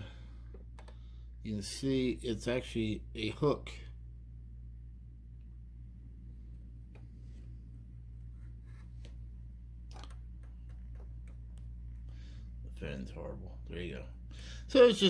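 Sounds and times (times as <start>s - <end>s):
steady low hum: 0.0s - 15.0s
faint clicks of small parts: 0.5s - 1.0s.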